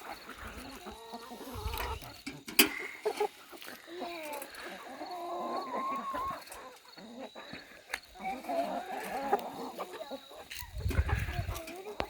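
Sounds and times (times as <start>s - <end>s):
hens calling: 0.0s - 12.0s.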